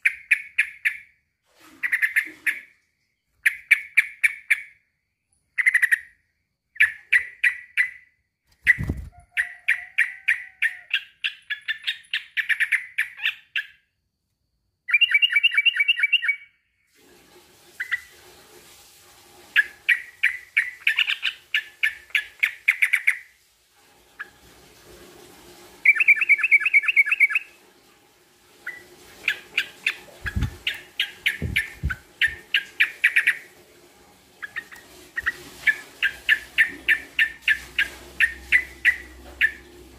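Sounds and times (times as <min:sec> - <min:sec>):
bird sharp chattering calls: 0:28.7 - 0:33.5.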